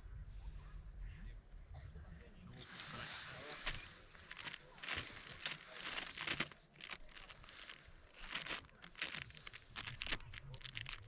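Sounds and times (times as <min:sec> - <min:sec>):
crinkling and rustling: 0:02.6 - 0:11.0.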